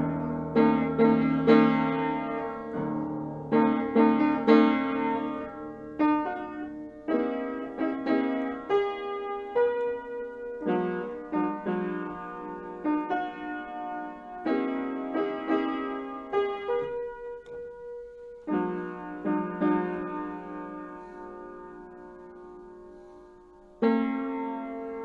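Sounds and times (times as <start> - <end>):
slow piano playing: 0.0 - 25.0.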